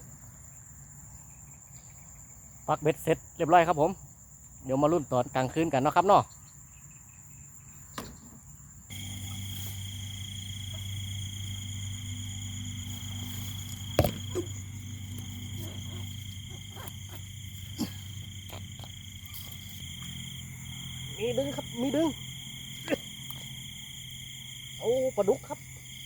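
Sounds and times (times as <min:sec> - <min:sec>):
insects trilling: 0:00.2 - 0:26.0
low steady drone: 0:08.9 - 0:23.2
soft knocks: 0:13.8 - 0:14.5.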